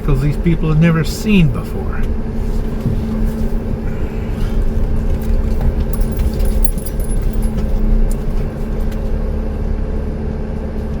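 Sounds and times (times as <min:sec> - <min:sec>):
engine hum: 0:00.0 - 0:11.0
road rumble: 0:00.0 - 0:11.0
light rattles and clinks: 0:05.0 - 0:09.2.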